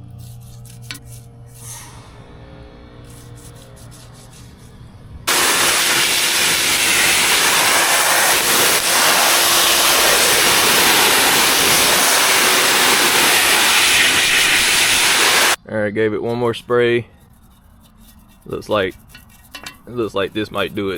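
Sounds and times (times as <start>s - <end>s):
aerosol can spraying hiss: 5.3s - 15.6s.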